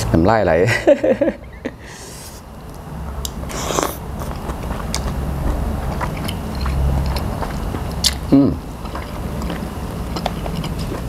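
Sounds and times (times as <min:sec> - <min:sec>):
close biting and chewing: 0:03.2 - 0:11.0
wet mouth sounds: 0:03.2 - 0:11.0.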